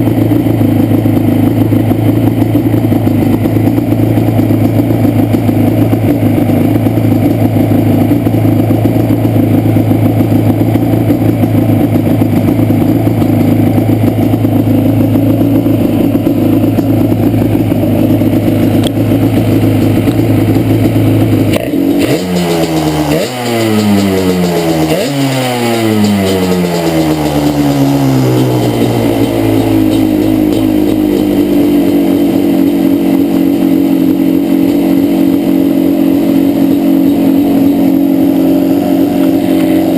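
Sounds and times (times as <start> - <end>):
two-stroke engine idling and revving: 0.0 - 39.9.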